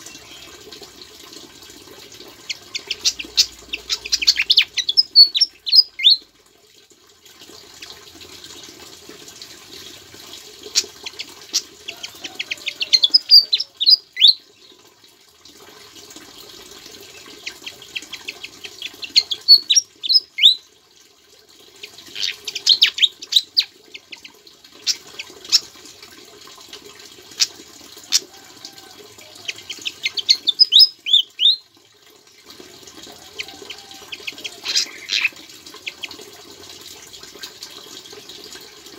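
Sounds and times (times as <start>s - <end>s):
songbird singing rapid chirps: 2.3s - 6.3s, 10.7s - 14.8s, 17.0s - 20.6s, 21.8s - 25.7s, 29.1s - 32.4s.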